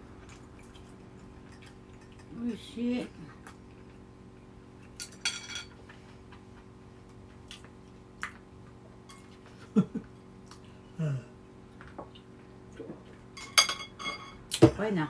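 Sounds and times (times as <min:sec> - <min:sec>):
faint steady hum: 0:00.0 - 0:15.0
dish clinking: 0:13.4 - 0:14.4.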